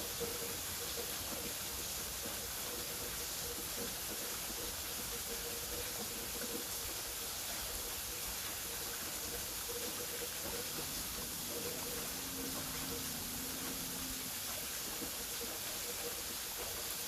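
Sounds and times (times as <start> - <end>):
waterfall rushing: 7.7 - 17.0.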